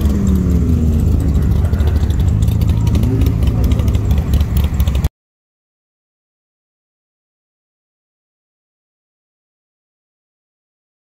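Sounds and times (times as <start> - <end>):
car engines running: 0.0 - 5.1
rising engine note: 0.0 - 5.1.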